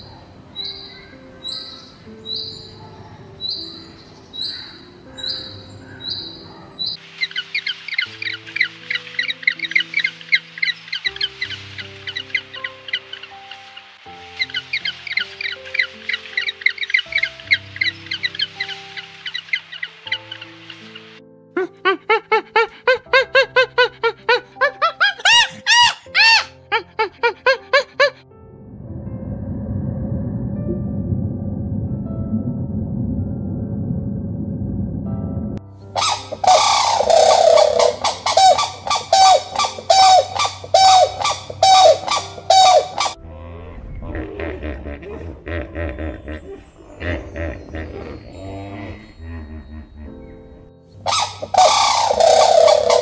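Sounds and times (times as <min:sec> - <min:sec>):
soft background music: 0:00.0 - 0:53.0
monkey calling: 0:21.6 - 0:28.2, 0:36.0 - 0:43.2, 0:51.0 - 0:53.0.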